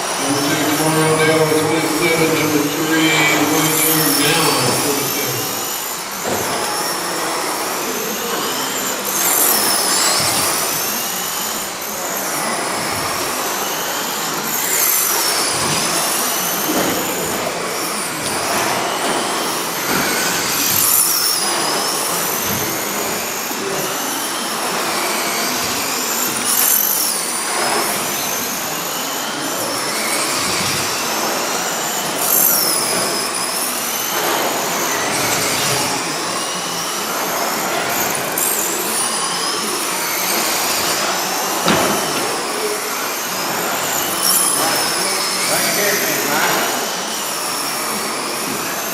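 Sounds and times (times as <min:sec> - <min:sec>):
toy truck motors whining: 0:00.0 - 0:48.9.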